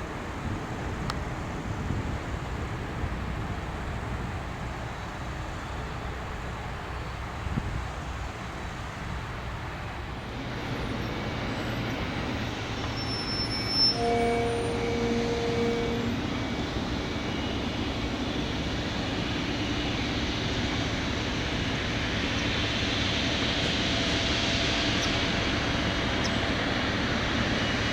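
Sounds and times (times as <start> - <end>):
jet engines roaring with high whine: 0.0 - 27.9
short steady tone: 12.9 - 16.3.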